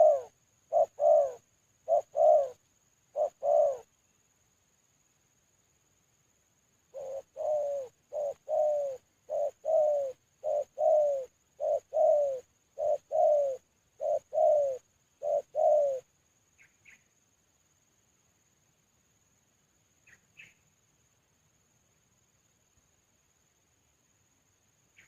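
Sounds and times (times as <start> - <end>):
dove cooing: 0.0 - 3.9, 6.9 - 16.1
faint high chirps: 0.0 - 25.0.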